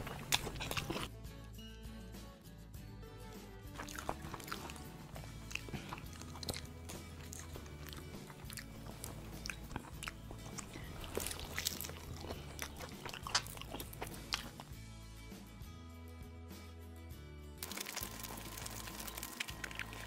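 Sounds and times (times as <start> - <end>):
crunchy fried chicken chewing: 0.0 - 1.1, 3.8 - 14.8, 17.6 - 20.0
soft background music: 0.0 - 20.0.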